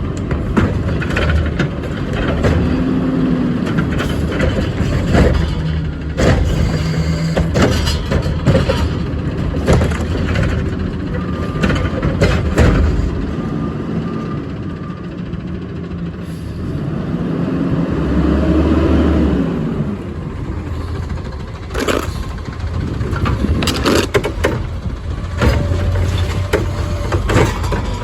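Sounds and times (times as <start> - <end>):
metallic knocks and bangs: 0.3 - 13.3
garbage truck engine revving: 0.3 - 14.5, 15.8 - 28.0.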